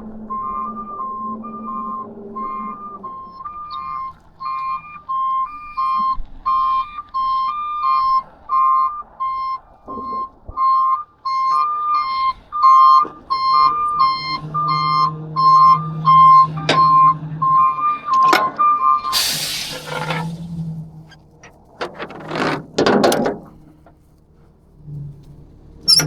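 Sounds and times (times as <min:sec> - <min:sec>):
truck backup alarm beeping: 0:00.3 - 0:24.1
sharp metal clank: 0:18.2 - 0:20.5.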